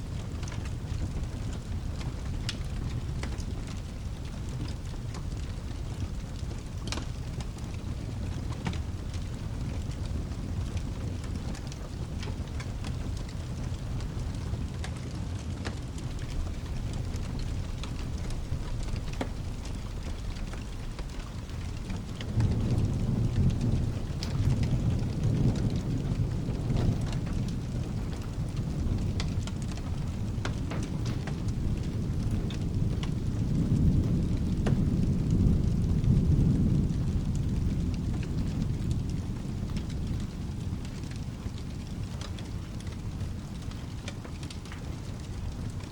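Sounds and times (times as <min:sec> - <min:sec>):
deep rolling thunder: 0:00.0 - 0:45.9
steady rain: 0:00.0 - 0:45.9
sharp crackles: 0:00.1 - 0:45.9
low background rumble: 0:15.6 - 0:45.9.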